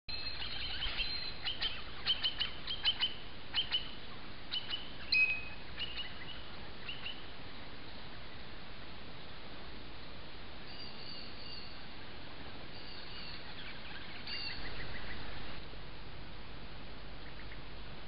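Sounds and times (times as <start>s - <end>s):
birds chirping: 0.1s - 8.5s, 10.6s - 15.6s, 17.1s - 17.8s
steady background hiss: 0.1s - 18.0s.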